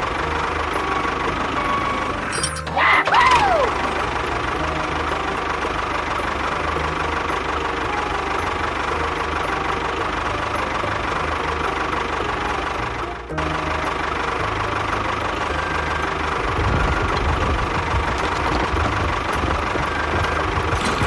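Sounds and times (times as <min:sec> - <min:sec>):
small engine idling: 0:03.5 - 0:21.0.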